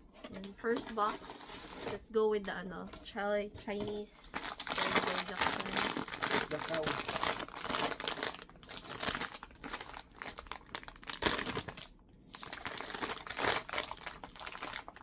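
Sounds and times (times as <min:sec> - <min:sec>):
packaging rustling and crackling: 0:00.2 - 0:02.0, 0:03.7 - 0:15.0
packaging snapping: 0:04.4 - 0:15.0.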